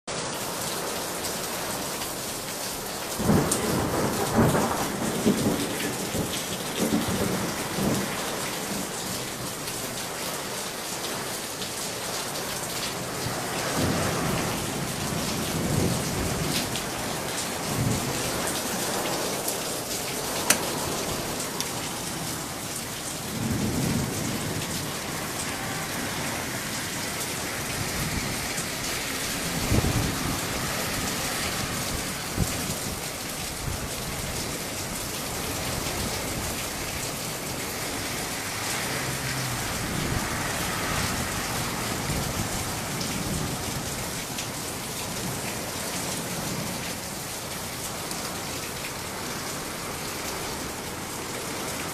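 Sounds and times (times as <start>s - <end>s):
heavy rain falling: 0.0s - 51.9s
thunder rumbling: 3.2s - 9.4s, 13.0s - 34.5s.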